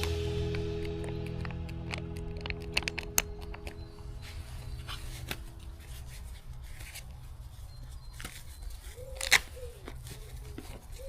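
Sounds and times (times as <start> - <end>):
steady low rumble: 0.0 - 8.0
light rubbing and handling: 2.0 - 11.0.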